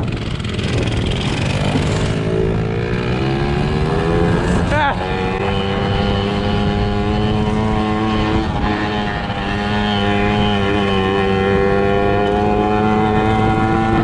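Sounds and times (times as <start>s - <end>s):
motorbike engine running: 0.0s - 14.0s.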